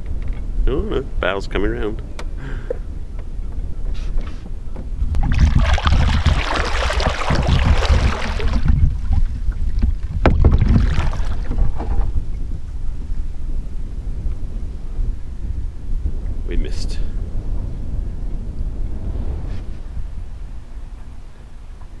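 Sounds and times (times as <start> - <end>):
wind buffeting microphone: 0.0 - 22.0
sharp knocks from boat: 2.2 - 5.3, 7.0 - 12.2
tidal water rushing: 5.2 - 11.7.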